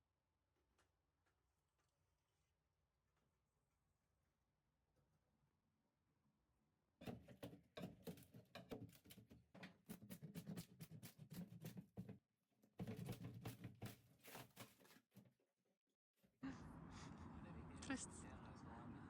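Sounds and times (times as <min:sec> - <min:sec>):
hand tools knocking on wood: 0:07.0 - 0:12.2, 0:12.8 - 0:14.5.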